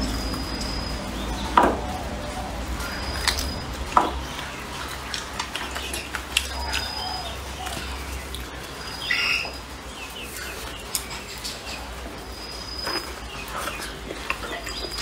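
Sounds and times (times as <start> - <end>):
person chewing food: 2.7 - 9.4, 10.2 - 15.0.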